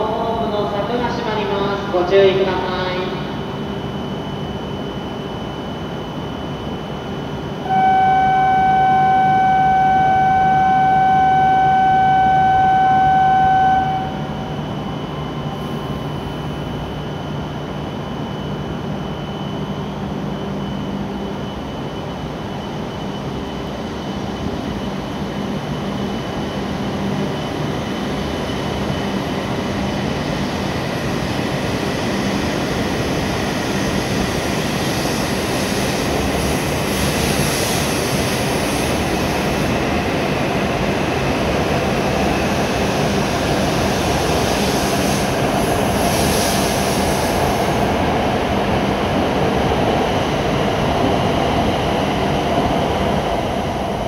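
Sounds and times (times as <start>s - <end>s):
train pulling away: 20.7s - 54.0s.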